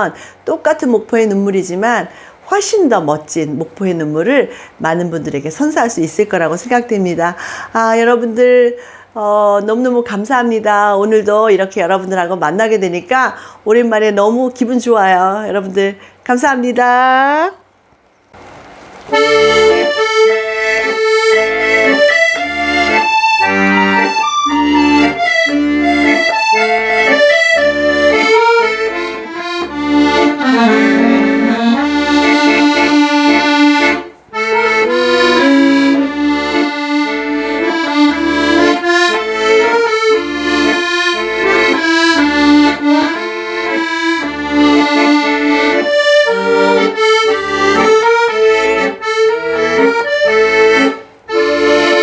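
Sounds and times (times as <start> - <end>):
accordion music: 19.1 - 52.0.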